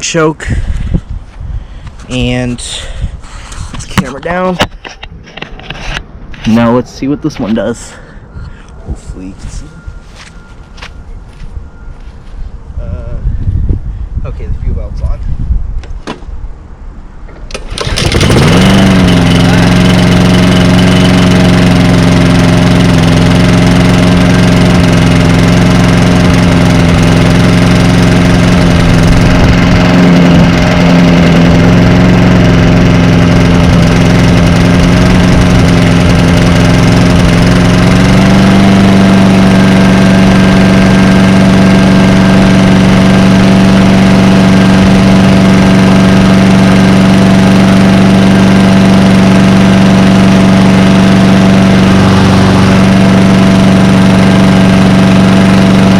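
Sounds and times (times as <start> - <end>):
lawn mower engine running: 17.3 - 55.9.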